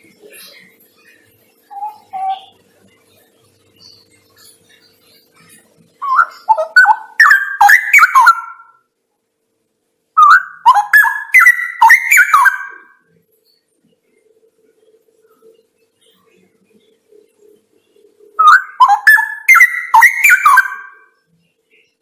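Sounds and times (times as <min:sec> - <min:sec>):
bird singing warbled phrases: 0:00.2 - 0:08.8, 0:10.2 - 0:13.0, 0:17.8 - 0:22.0.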